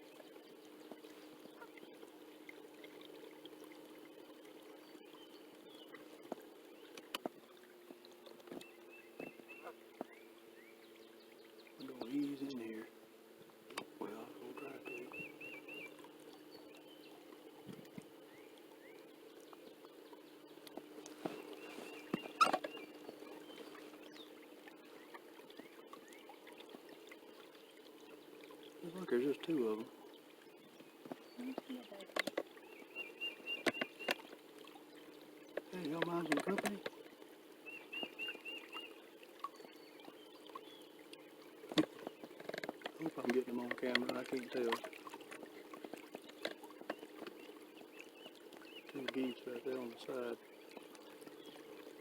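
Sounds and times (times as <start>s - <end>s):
steady low hum: 0.0s - 52.0s
water trickling: 0.0s - 52.0s
faint bird chirps: 8.5s - 12.9s, 14.0s - 17.2s, 18.2s - 26.8s, 27.5s - 35.1s, 37.6s - 42.3s, 46.2s - 52.0s
squeak: 22.2s - 22.8s.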